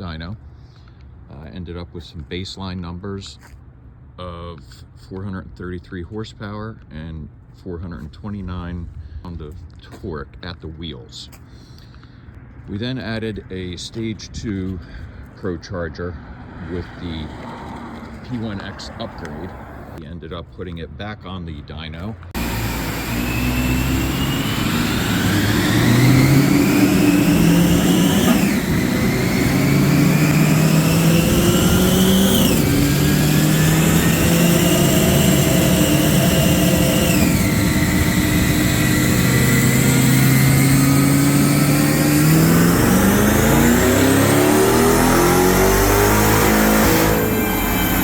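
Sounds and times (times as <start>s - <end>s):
supercharger whine: 22.2s - 48.0s
car engine running hard: 22.3s - 48.0s.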